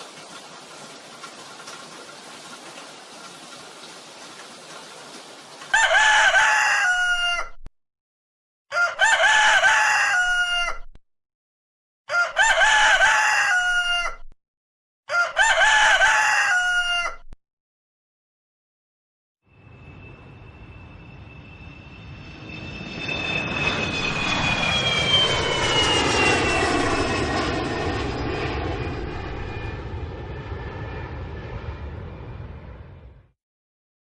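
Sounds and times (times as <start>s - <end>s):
rooster crowing: 5.7s - 7.6s, 8.7s - 10.9s, 12.1s - 14.3s, 15.1s - 17.4s.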